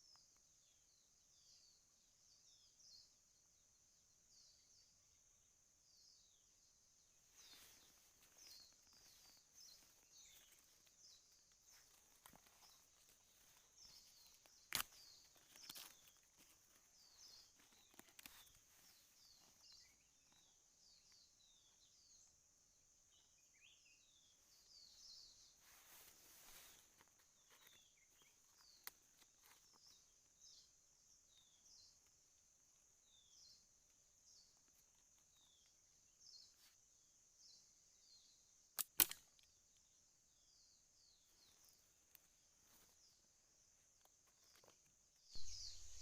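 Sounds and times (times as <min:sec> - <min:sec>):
small birds chirping: 0:00.0 - 0:46.0
light rustles and clicks: 0:08.1 - 0:20.4.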